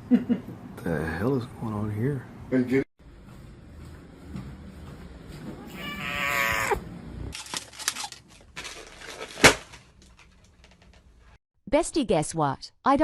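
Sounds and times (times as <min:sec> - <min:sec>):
cat meowing: 0:05.7 - 0:06.8.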